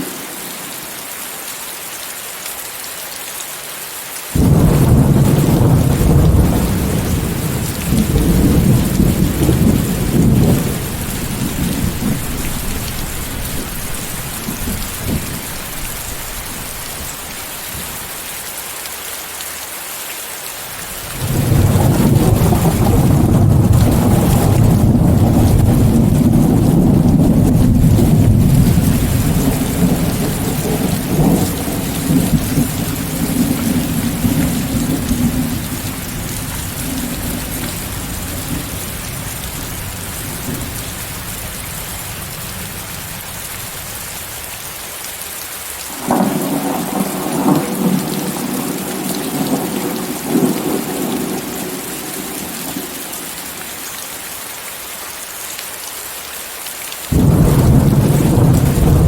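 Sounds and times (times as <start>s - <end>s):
rain hissing: 0.0s - 59.0s
rolling thunder: 4.4s - 17.9s, 21.2s - 41.2s, 45.9s - 53.0s, 57.1s - 59.0s.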